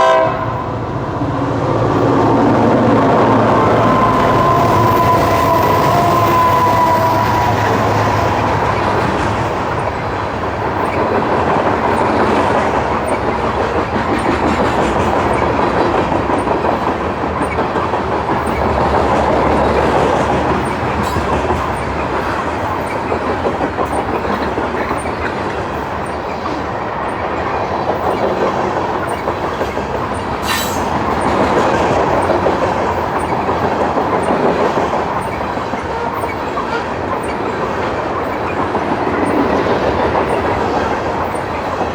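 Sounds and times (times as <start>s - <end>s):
freight train rumbling past: 0.0s - 41.9s
wheels clacking over rail joints: 0.1s - 41.9s
sharp metal clank: 30.4s - 30.9s.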